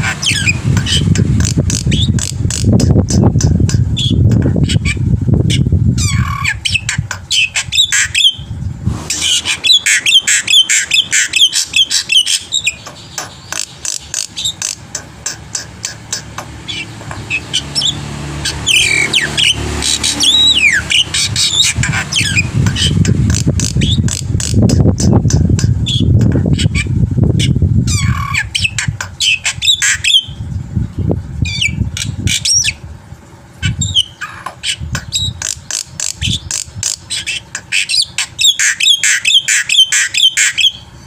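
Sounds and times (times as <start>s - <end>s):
bird singing varied song: 0.0s - 32.8s, 33.6s - 41.0s.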